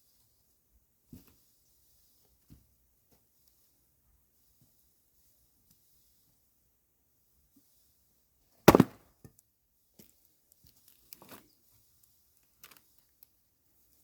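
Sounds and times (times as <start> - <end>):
axe chopping log: 8.7 - 9.0.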